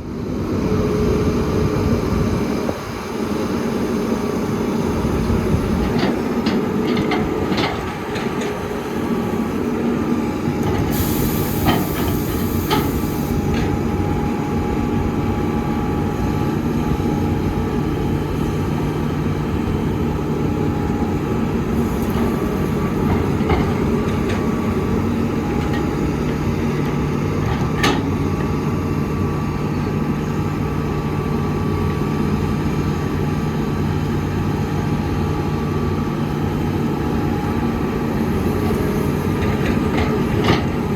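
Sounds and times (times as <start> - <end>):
diesel machinery running: 0.0 - 40.9
brief hiss: 10.9 - 13.4.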